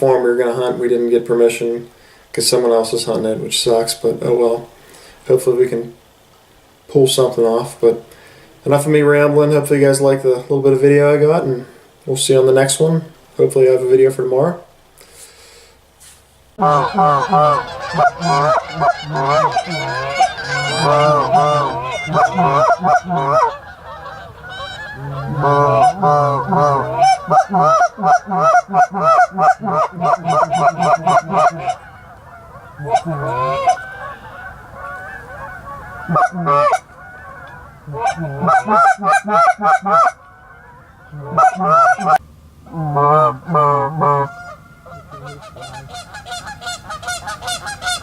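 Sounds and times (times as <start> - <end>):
flock of geese honking: 0.0 - 6.0, 16.6 - 48.0.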